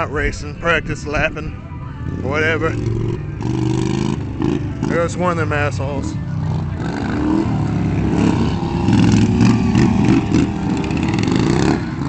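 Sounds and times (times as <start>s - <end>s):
lawnmower engine revving: 2.3s - 5.4s, 6.4s - 12.0s.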